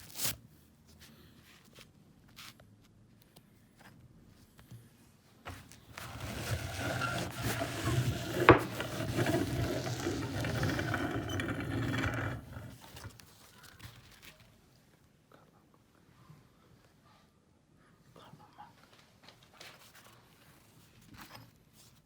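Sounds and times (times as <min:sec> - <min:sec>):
meat grinder grinding: 0:06.1 - 0:12.8.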